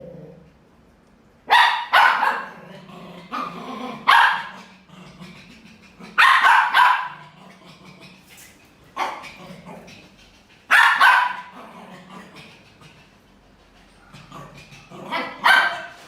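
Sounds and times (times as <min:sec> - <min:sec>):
dog barking: 0:01.5 - 0:02.6, 0:03.4 - 0:04.7, 0:06.2 - 0:07.3, 0:10.7 - 0:11.6, 0:15.1 - 0:16.0.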